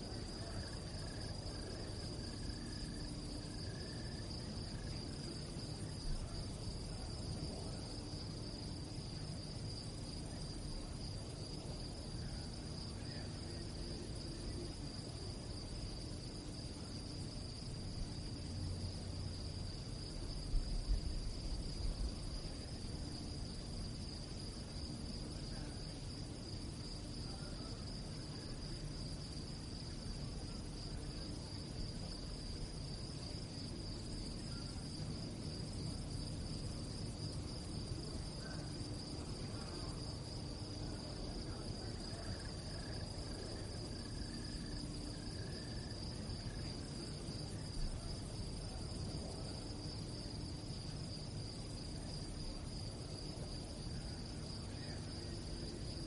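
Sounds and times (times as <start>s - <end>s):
crickets chirping trill: 0.0s - 56.0s.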